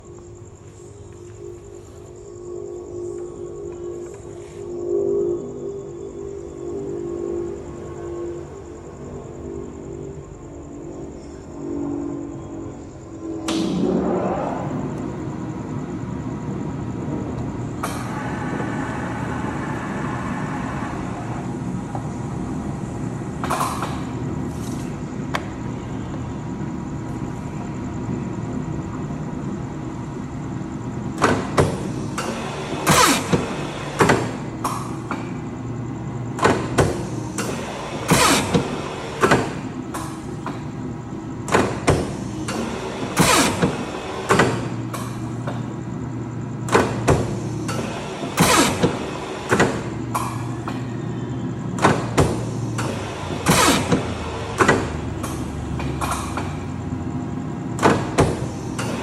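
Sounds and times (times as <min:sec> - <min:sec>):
deeper hum: 0:00.0 - 0:31.2.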